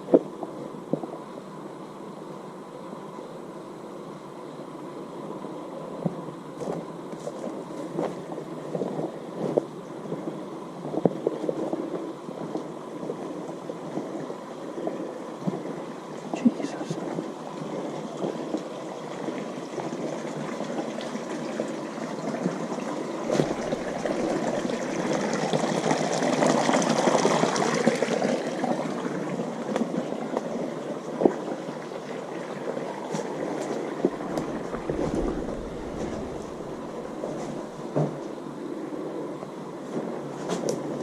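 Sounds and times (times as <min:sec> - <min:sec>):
running water: 0:14.0 - 0:38.3.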